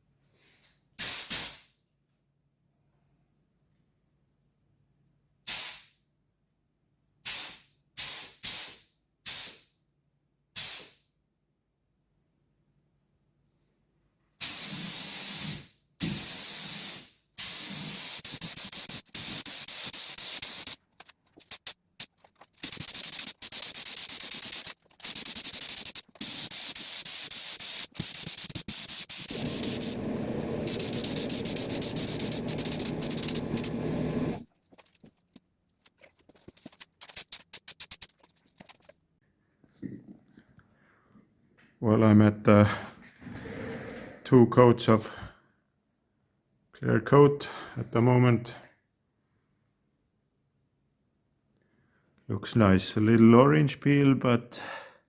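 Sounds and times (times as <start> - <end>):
aerosol spray can hissing: 14.4 - 20.8, 21.4 - 21.7, 22.6 - 34.4.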